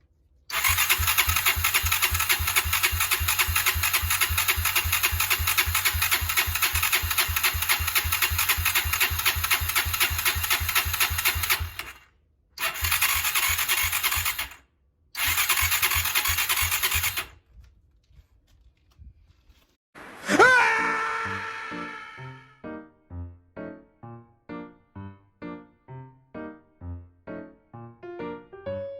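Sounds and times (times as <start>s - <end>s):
motorcycle engine cranking on starter: 0.5s - 14.6s, 15.2s - 17.4s.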